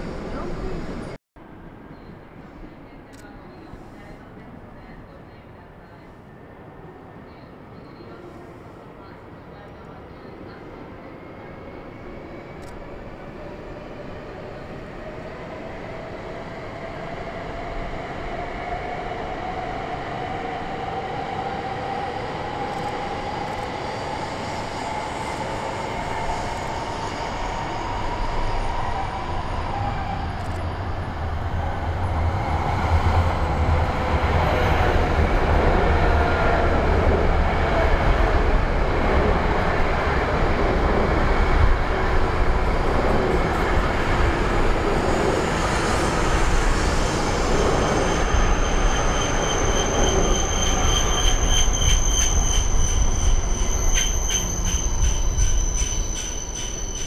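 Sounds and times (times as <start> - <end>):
deep rumble of train wheels: 21.8 - 57.0.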